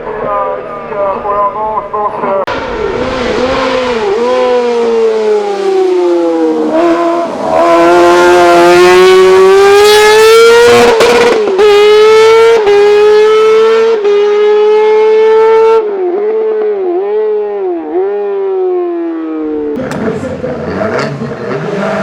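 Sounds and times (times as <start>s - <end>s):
race car engine at high revs: 2.5s - 22.0s
quick gear upshifts: 19.5s - 22.0s.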